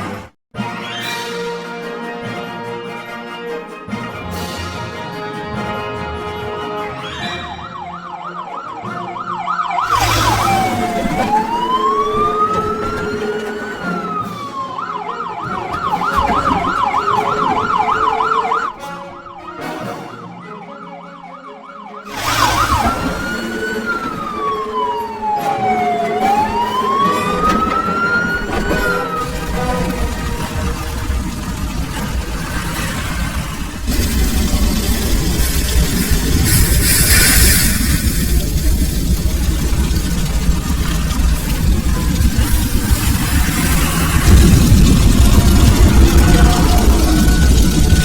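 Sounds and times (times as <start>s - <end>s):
background music: 0.0s - 32.6s
fire truck siren: 5.6s - 48.0s.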